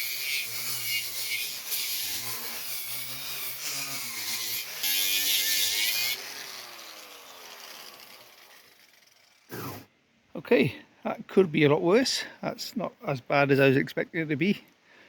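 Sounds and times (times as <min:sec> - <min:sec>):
angle grinder grinding metal: 0:00.0 - 0:09.9.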